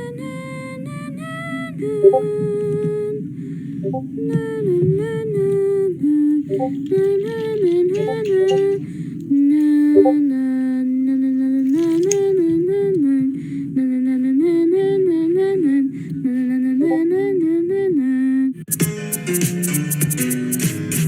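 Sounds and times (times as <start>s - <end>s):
person humming a tune: 6.5s - 8.8s.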